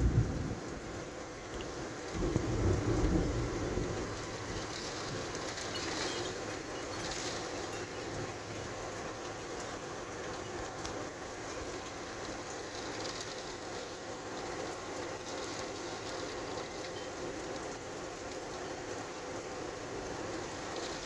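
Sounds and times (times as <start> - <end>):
gusting wind: 0.0 - 7.9
heavy rain: 0.0 - 21.0.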